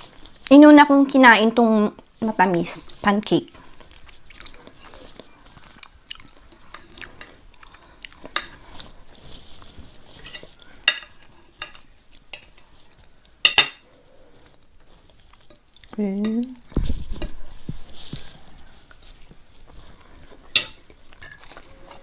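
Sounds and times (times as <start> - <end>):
cutlery clinking on a plate: 10.2 - 12.5, 13.4 - 13.8, 20.5 - 22.0.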